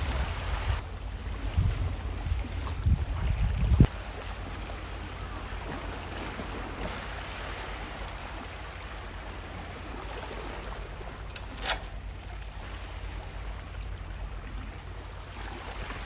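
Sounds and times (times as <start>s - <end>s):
sea water washing on shore: 3.9s - 16.0s.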